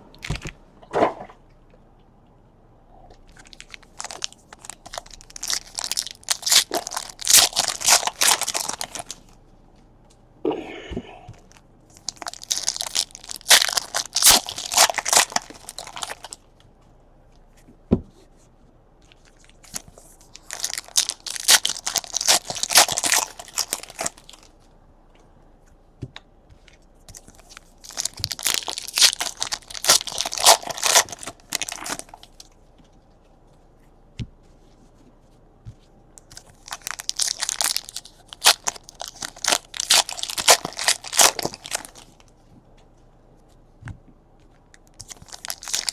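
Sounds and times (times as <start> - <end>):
foil wrappers tearing and crinkling: 3.4 - 9.3, 12.0 - 16.4, 19.2 - 24.5, 27.1 - 32.5, 36.3 - 42.2, 44.9 - 45.9.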